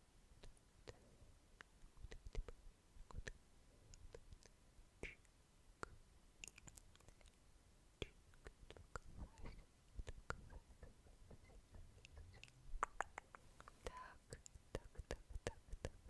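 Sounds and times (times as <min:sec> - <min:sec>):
wet lip and tongue clicks: 0:04.0 - 0:07.4, 0:12.0 - 0:13.8.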